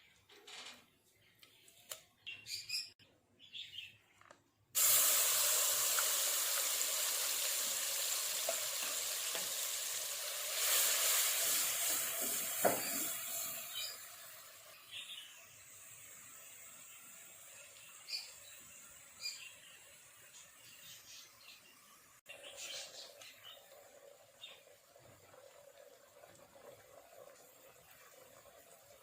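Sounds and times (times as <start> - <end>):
meat sizzling in a pan: 4.8 - 14.8, 15.4 - 20.2.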